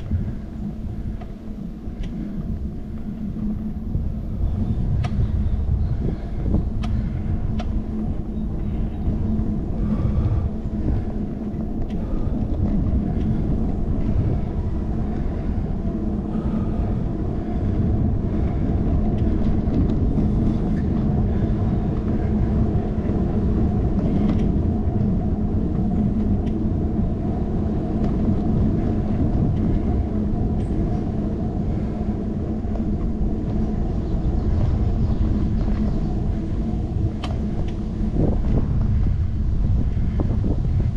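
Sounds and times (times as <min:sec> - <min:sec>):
road vibration rumble: 0:00.0 - 0:40.9
wind buffeting microphone: 0:00.0 - 0:40.9
faint ticks: 0:01.0 - 0:03.6, 0:06.8 - 0:07.8, 0:26.0 - 0:26.7, 0:37.1 - 0:37.8.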